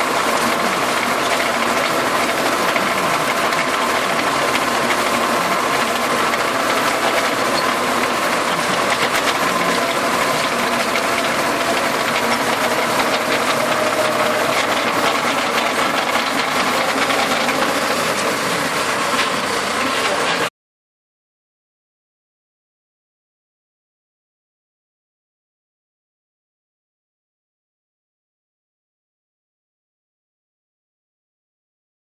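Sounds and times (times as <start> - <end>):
rotary tiller clattering: 0.0 - 20.5
tractor engine running: 0.0 - 20.5.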